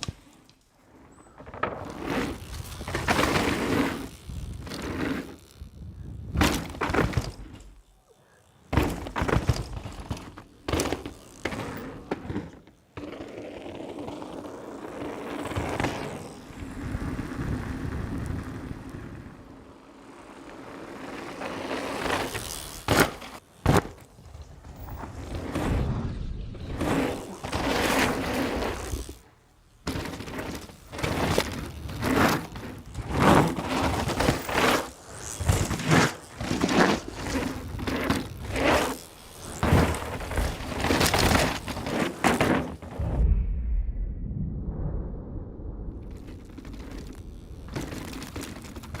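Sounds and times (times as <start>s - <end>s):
bike tyres rattling on dirt: 0.0s - 43.2s, 46.0s - 49.0s
bike frame knocks and thuds: 6.3s - 7.6s, 8.7s - 12.6s, 22.8s - 24.8s.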